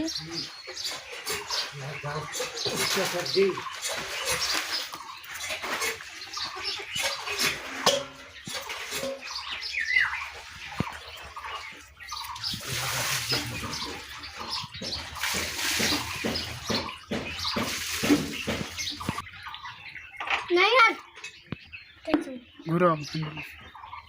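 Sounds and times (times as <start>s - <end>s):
water splashing and pouring: 0.9s - 19.8s.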